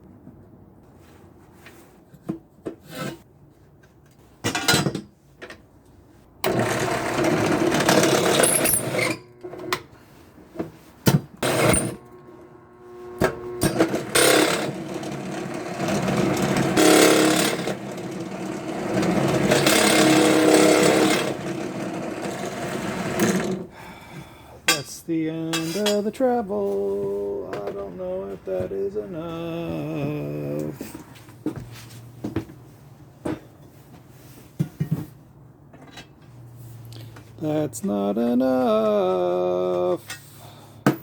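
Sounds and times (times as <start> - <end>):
drill press boring metal: 6.5 - 9.8, 11.3 - 23.6.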